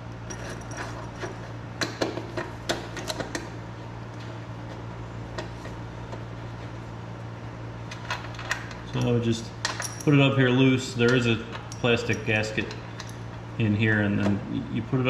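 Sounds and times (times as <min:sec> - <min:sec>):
small metal parts clinking: 0:00.2 - 0:01.4, 0:07.9 - 0:10.2, 0:11.1 - 0:13.3.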